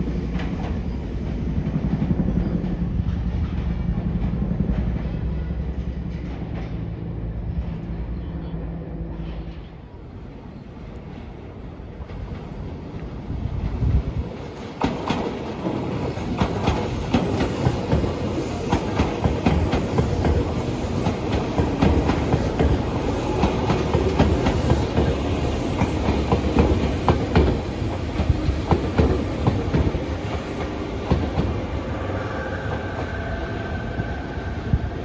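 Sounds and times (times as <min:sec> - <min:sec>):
train rumble: 0:00.0 - 0:35.0
train wheels clacking: 0:14.4 - 0:34.9.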